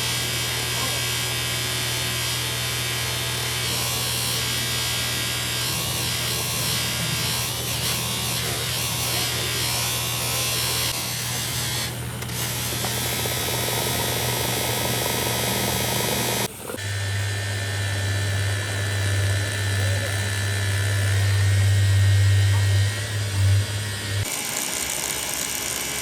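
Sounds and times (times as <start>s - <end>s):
electric motor humming: 0.0s - 26.0s.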